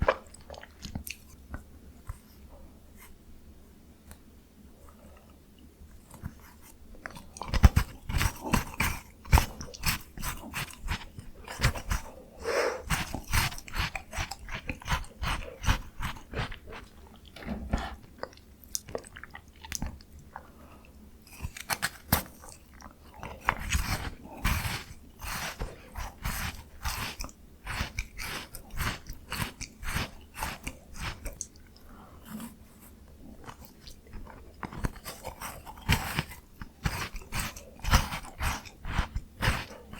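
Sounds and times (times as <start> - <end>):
wet chewing clicks: 0.0 - 1.3, 5.2 - 12.2, 12.8 - 32.6, 33.3 - 39.9
crunchy biting of ice cream bar: 7.0 - 12.1, 12.8 - 17.3, 21.3 - 32.6, 33.2 - 39.9.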